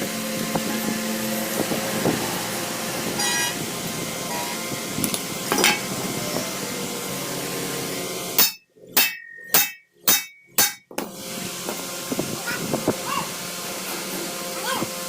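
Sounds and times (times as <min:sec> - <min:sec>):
workshop noise: 0:00.0 - 0:15.0
hammer blows on metal: 0:08.4 - 0:11.1.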